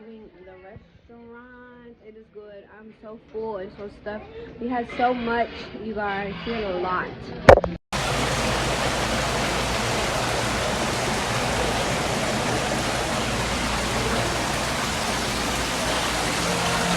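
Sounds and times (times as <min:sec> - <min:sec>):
rushing falling water: 0:08.0 - 0:16.9.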